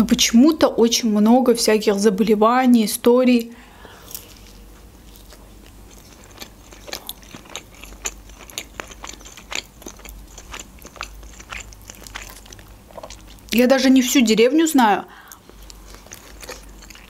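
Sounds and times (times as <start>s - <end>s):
chewing mouth clicks: 5.2s - 13.6s, 15.2s - 17.0s.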